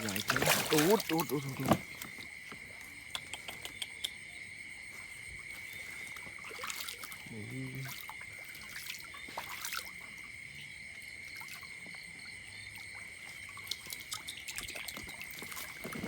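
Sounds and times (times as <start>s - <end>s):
insects chirping: 0.0s - 16.0s
trickling water: 0.0s - 16.0s
faint clicks: 3.0s - 4.2s.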